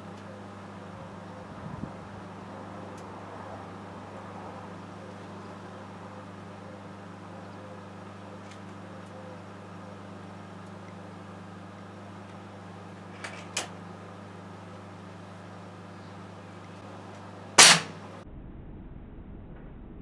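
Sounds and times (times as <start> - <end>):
microwave oven humming: 0.0 - 18.2
gunshot crack: 17.6 - 18.1.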